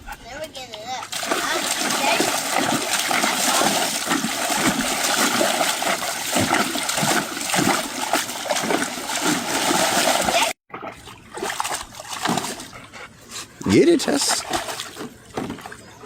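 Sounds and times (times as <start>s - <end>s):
water splashing in a pool: 1.0s - 12.8s, 13.6s - 15.9s.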